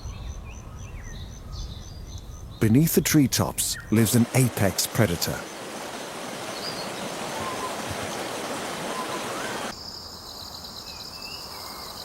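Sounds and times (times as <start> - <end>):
rushing stream hiss: 3.3 - 9.8
insect trill: 9.8 - 12.0.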